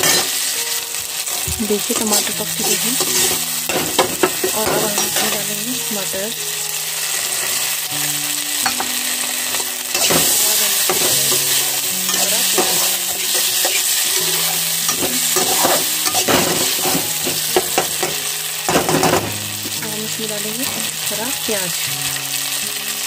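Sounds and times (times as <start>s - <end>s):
metal spatula scraping a pan: 0.0s - 0.6s, 1.8s - 5.5s, 8.6s - 19.9s
vegetables sizzling in hot oil: 0.0s - 23.0s.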